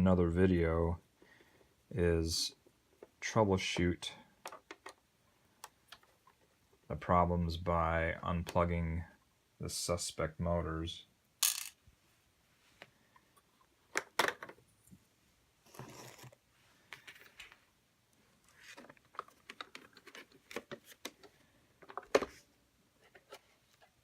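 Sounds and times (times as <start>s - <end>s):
plastic parts clicking and tapping: 4.4s - 5.0s, 5.6s - 6.5s, 13.9s - 14.6s, 18.8s - 22.4s.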